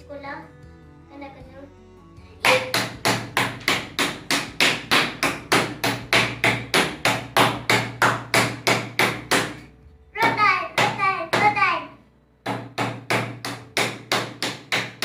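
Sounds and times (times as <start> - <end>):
meat being pounded: 2.4 - 11.8, 12.4 - 15.0.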